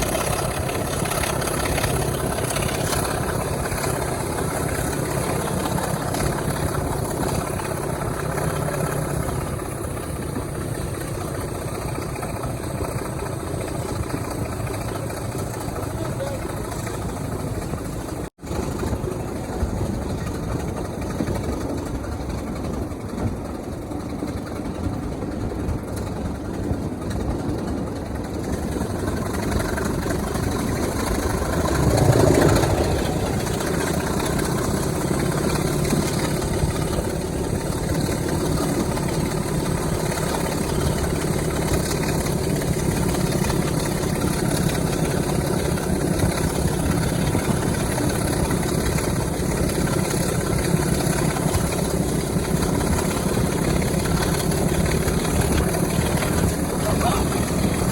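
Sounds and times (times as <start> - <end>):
diesel locomotive engine running: 0.0 - 57.9.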